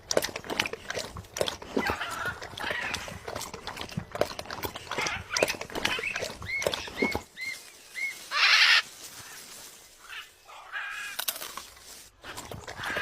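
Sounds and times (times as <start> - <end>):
harsh bird squawk: 6.0 - 11.2.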